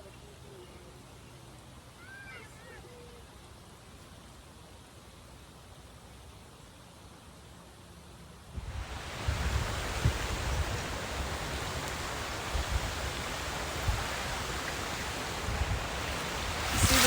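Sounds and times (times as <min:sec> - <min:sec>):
stream water flowing: 0:03.2 - 0:17.0
wind buffeting microphone: 0:08.6 - 0:17.0.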